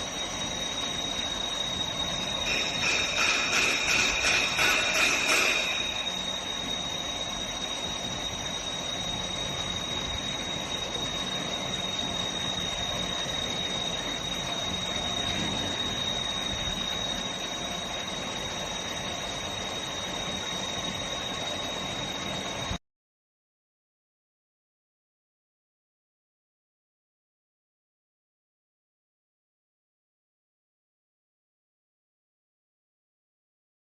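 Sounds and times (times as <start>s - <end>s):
high-pitched whine: 0.0s - 22.8s
pumped water rushing through pipes: 0.0s - 22.8s.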